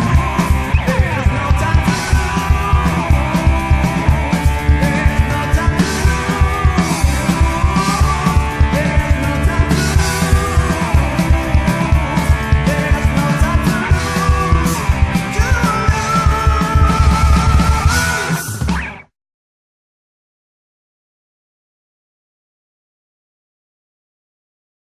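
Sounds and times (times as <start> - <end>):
heavy metal band playing: 0.0 - 19.1.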